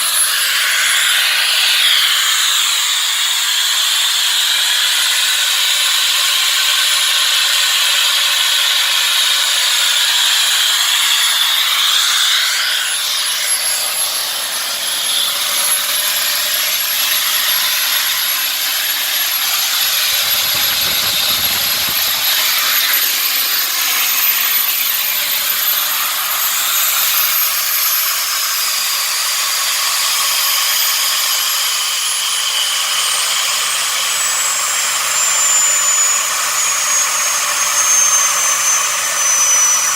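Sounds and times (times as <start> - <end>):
high turbine whine: 16.7 - 31.2
gas turbine engine hissing: 19.4 - 28.1.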